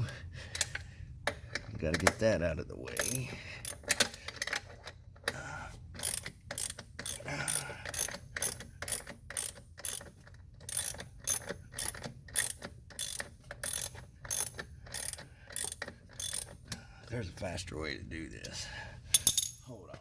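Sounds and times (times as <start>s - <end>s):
socket ratchet clicking: 6.0s - 16.8s.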